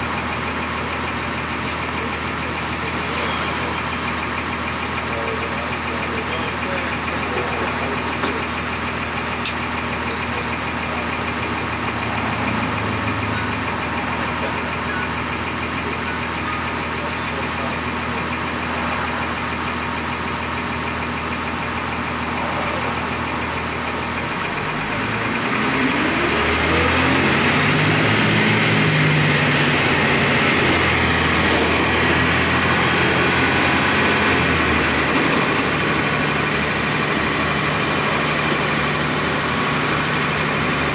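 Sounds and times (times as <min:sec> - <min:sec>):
bus diesel engine idling and revving: 0:00.0 - 0:40.9
high engine whine: 0:00.0 - 0:40.9.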